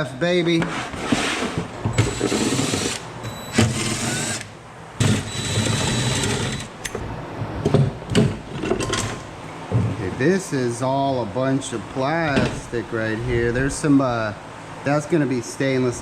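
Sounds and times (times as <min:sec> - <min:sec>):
power drill whining: 0:02.0 - 0:06.8.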